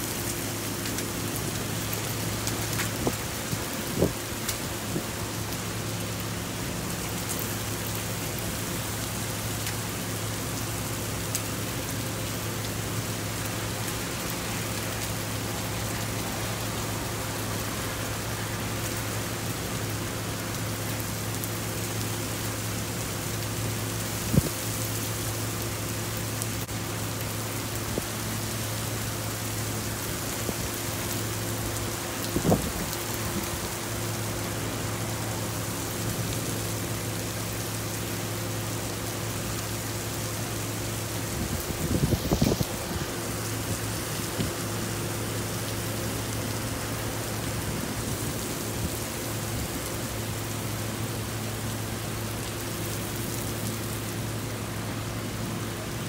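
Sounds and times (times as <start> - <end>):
heavy rain on pavement: 0.0 - 56.0.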